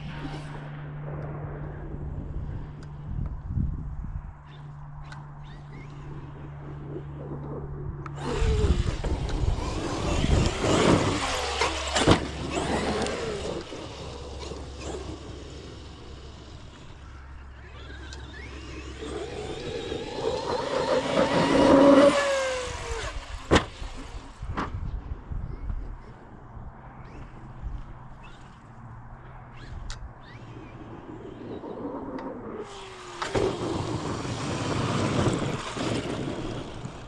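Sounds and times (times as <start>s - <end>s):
electric motor whine: 8.1s - 24.5s, 29.5s - 37.0s
tyres on dirt: 8.1s - 25.0s, 32.5s - 37.0s.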